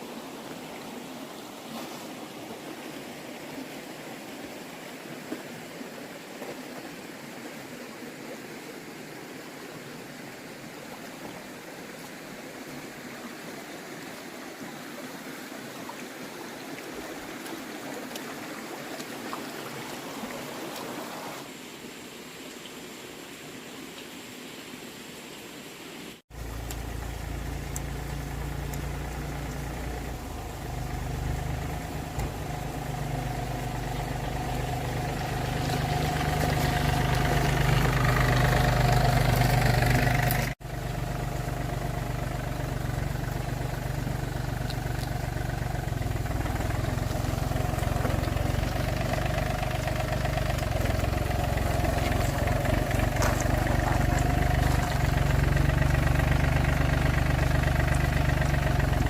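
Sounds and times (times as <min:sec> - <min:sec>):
engine running: 0:26.3 - 0:59.0.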